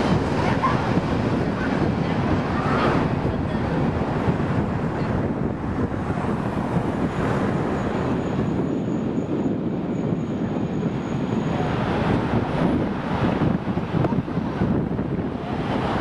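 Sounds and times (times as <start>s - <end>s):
jet engine rushing: 0.0s - 16.0s
wind buffeting microphone: 0.0s - 16.0s.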